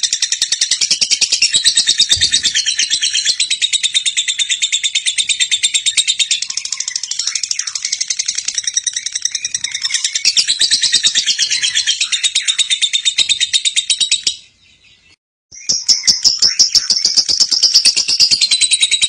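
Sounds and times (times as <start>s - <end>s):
lovebird chattering: 0.0s - 14.4s.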